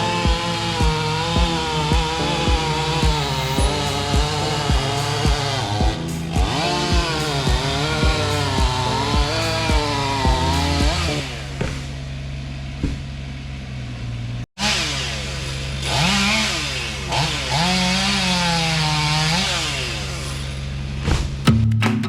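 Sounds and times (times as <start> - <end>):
guitar music: 0.0 - 11.1
chainsaw cutting wood: 0.0 - 12.0, 14.6 - 20.7.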